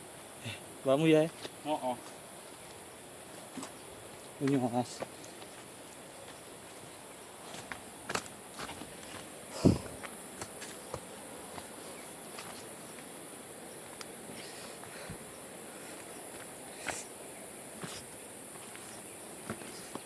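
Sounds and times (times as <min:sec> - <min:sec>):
insects droning: 0:00.0 - 0:20.0
footsteps scuffing and tapping: 0:04.4 - 0:13.1, 0:17.8 - 0:20.0.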